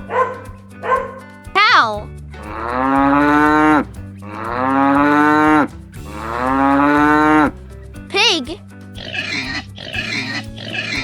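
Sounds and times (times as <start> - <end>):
cow mooing: 2.4 - 7.6.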